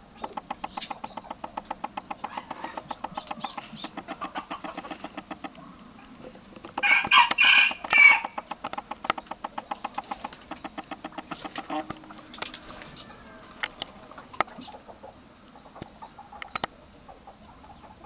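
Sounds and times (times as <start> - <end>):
bird calling loudly: 0.0 - 5.9, 6.6 - 13.8
fast soft clicks: 0.2 - 13.0.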